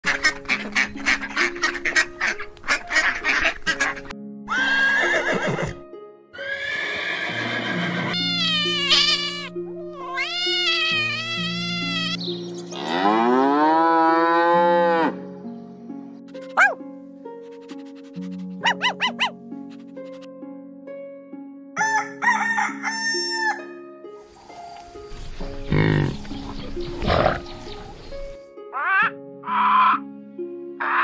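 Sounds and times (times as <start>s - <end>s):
ducks quacking: 0.0s - 4.1s, 28.7s - 30.0s
background music: 0.0s - 31.0s
horses whinnying: 4.5s - 5.8s, 6.4s - 12.2s
cow mooing: 12.8s - 15.2s.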